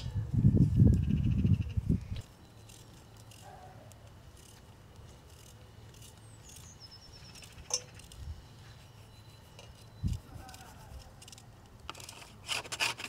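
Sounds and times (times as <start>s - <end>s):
bird chirps and trill: 6.0s - 10.8s.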